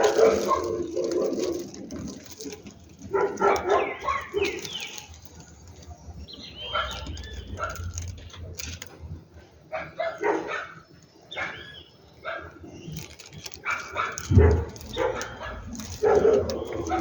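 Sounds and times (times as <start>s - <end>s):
dog barking: 0.0s - 1.7s, 3.1s - 4.8s, 6.6s - 8.0s, 9.7s - 10.8s, 11.4s - 11.6s, 12.2s - 12.6s, 13.6s - 17.0s
bird calls: 3.2s - 8.4s, 9.9s - 17.0s.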